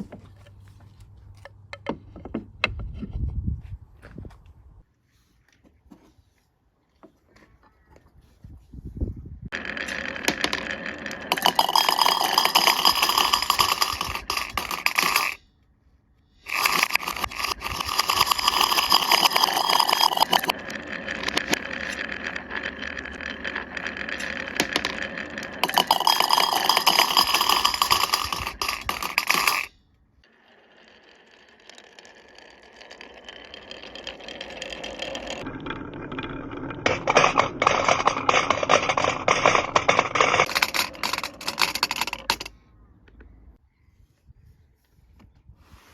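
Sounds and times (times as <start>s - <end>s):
marbles rolling on wooden run: 9.5s - 15.4s, 16.4s - 42.6s.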